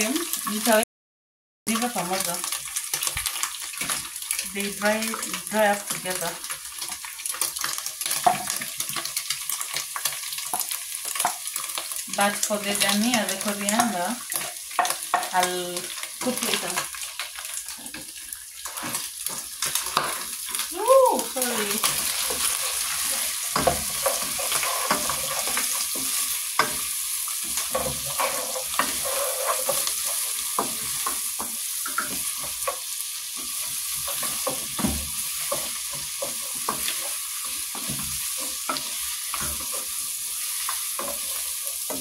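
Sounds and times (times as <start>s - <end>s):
food sizzling in a pot: 0.0s - 0.8s, 1.7s - 42.0s
spoon scraping and knocking pot: 22.4s - 32.8s.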